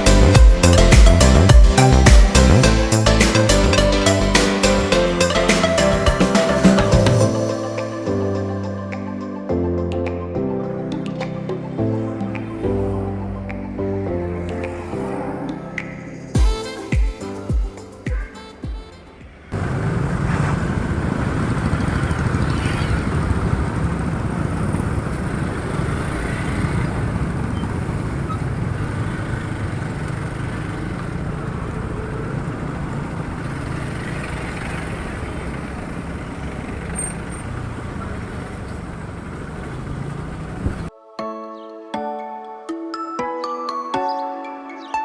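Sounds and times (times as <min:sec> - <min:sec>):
road noise: 0:00.0 - 0:08.9, 0:10.4 - 0:41.0
motorcycle engine: 0:18.1 - 0:40.9.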